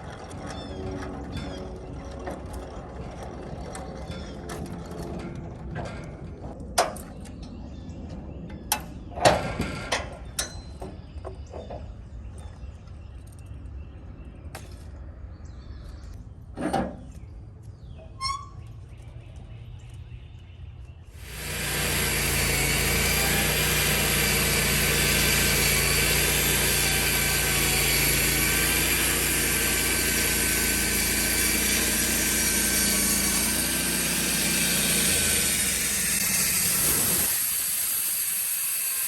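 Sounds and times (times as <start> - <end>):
sawmill engine idling: 21.2 - 39.0.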